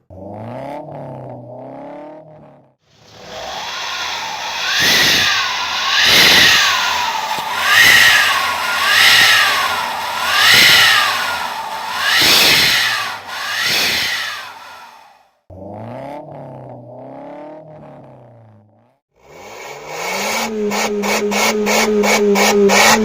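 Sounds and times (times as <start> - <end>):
exhaust whooshing whistle: 3.0 - 15.2.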